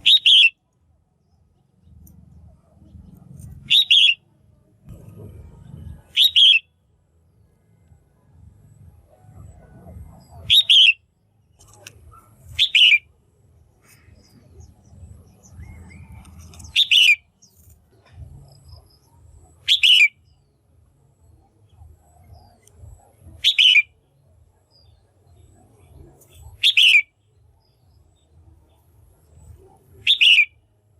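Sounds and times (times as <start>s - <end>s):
bird calling: 0.0s - 0.6s, 3.5s - 4.2s, 6.0s - 6.7s, 9.3s - 11.0s, 11.6s - 13.1s, 13.8s - 20.4s, 23.3s - 23.9s, 26.2s - 27.1s, 29.6s - 30.6s
low background rumble: 0.0s - 30.9s.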